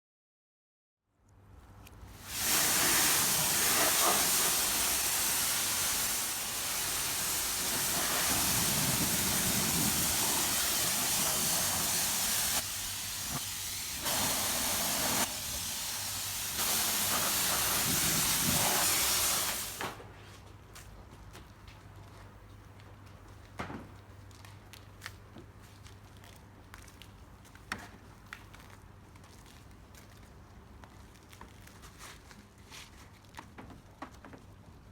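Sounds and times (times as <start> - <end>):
high-pressure water spray hissing: 2.2 - 19.8.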